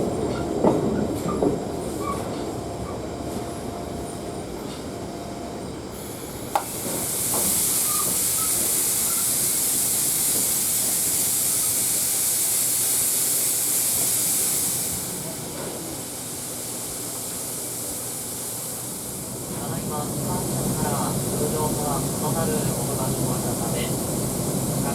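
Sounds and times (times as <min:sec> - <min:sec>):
steam hissing from locomotive: 0:06.0 - 0:24.9.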